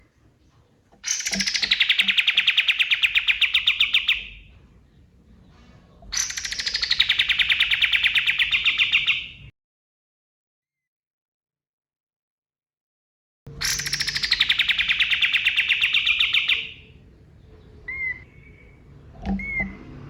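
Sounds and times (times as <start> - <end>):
songbird singing rapid notes: 1.0 - 4.4, 6.2 - 9.4, 13.6 - 19.8.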